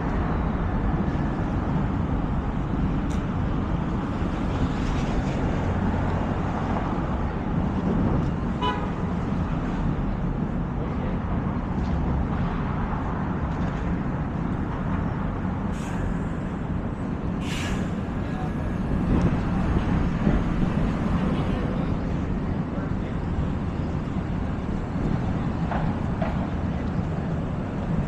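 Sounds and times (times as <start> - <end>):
traffic rumble: 0.0 - 28.0
short sharp hisses: 17.4 - 18.0.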